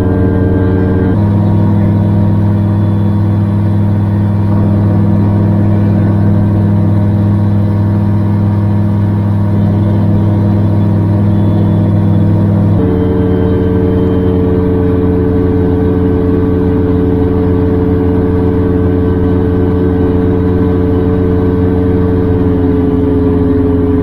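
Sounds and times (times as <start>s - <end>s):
gyrocopter engine droning: 0.0s - 24.0s.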